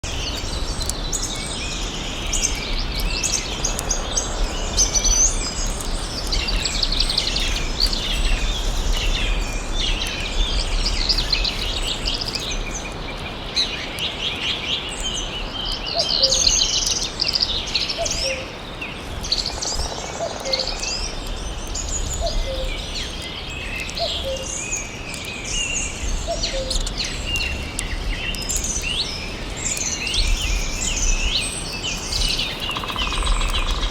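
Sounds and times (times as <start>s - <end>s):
birds chirping and trilling: 0.0s - 33.9s.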